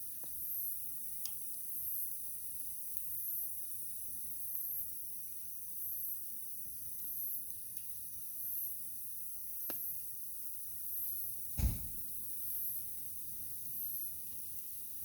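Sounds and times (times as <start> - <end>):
fire pop: 11.6 - 12.2.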